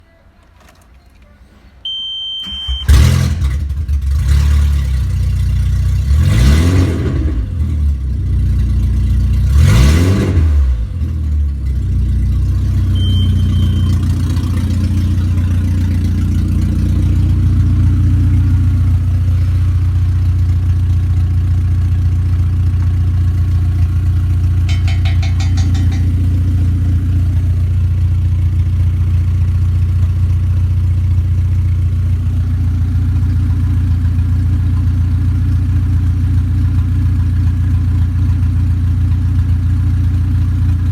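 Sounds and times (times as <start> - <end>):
short high beep: 1.8 - 3.0, 12.9 - 14.3
car engine starting and revving: 2.5 - 24.7.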